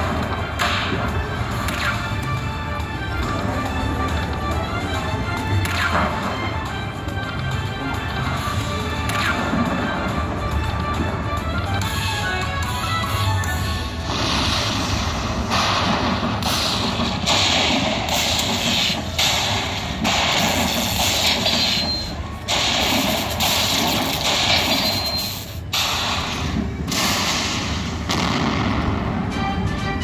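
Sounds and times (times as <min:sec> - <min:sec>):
tuneful slot machine music: 0:00.0 - 0:30.0
slot machine crashing bursts: 0:14.0 - 0:28.4.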